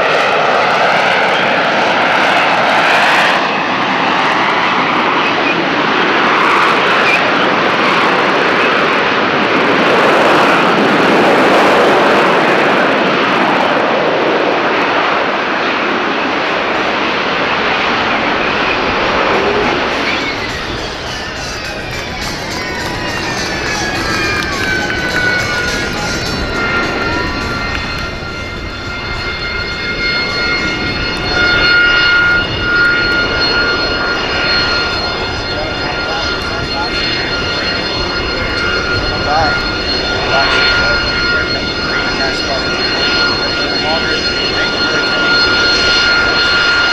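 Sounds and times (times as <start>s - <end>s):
jet engine running: 0.0s - 46.9s.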